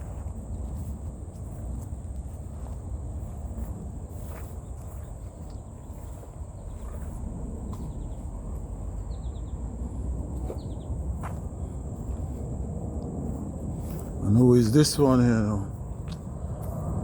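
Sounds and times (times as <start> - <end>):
small birds chirping: 0.0 - 12.4
low rumble: 0.0 - 14.6.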